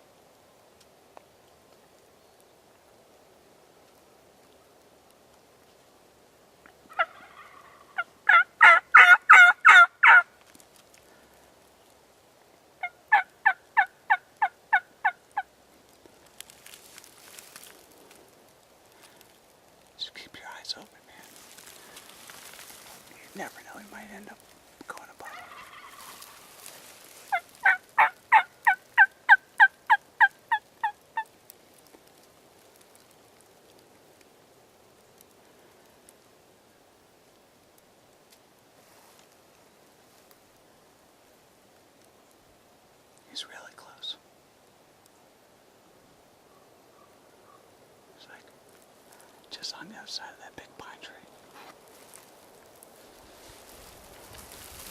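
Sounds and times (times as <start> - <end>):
turkey yelps: 6.9 - 10.3, 12.8 - 15.5, 25.3 - 26.6, 27.3 - 31.3.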